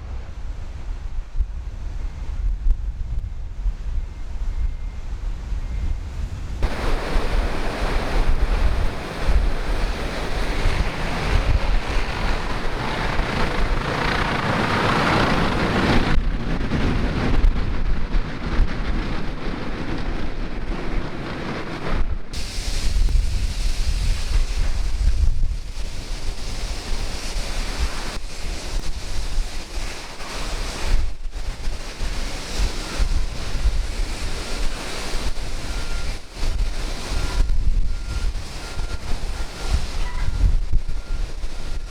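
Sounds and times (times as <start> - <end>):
wind buffeting microphone: 0.0 - 41.9
sea rushing: 6.6 - 16.6.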